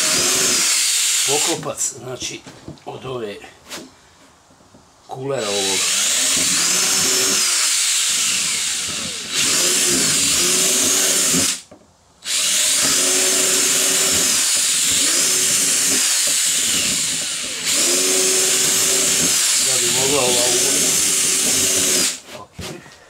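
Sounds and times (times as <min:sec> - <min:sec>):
electric drill boring plastic: 0:00.0 - 0:01.6, 0:05.4 - 0:11.6, 0:12.2 - 0:22.2.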